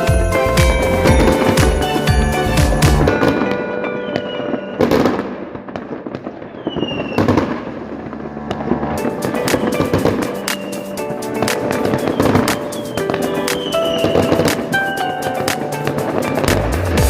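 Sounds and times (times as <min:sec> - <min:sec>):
fireworks exploding: 0:00.0 - 0:17.0
crackling firework bangs: 0:04.2 - 0:16.9.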